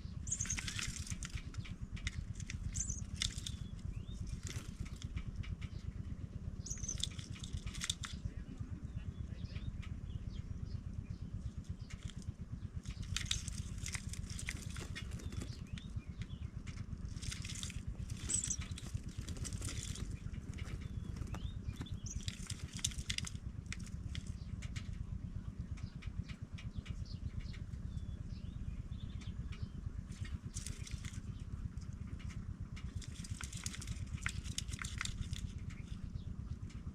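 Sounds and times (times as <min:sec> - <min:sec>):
steady low rumble: 0:00.0 - 0:36.9
nestlings rustling and fluttering: 0:00.2 - 0:08.6, 0:11.4 - 0:24.5, 0:30.1 - 0:36.2
faint thin chirps: 0:00.3 - 0:01.5, 0:02.4 - 0:05.0, 0:06.6 - 0:08.2, 0:17.2 - 0:23.3.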